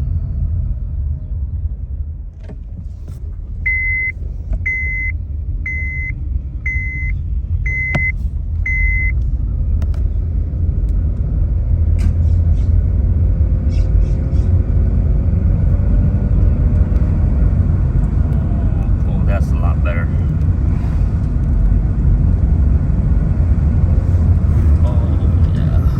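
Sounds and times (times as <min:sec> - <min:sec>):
car engine rumble: 0:00.0 - 0:25.9
short electronic beeps: 0:03.7 - 0:09.2.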